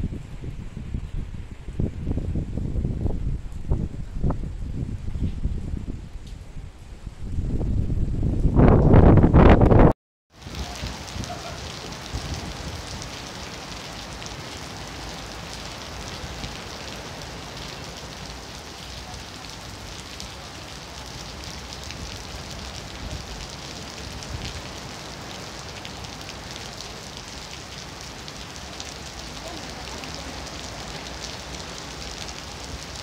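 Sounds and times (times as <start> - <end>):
wind gusting on microphone: 0.0 - 33.0
heavy rain on paving and leaves: 10.3 - 33.0.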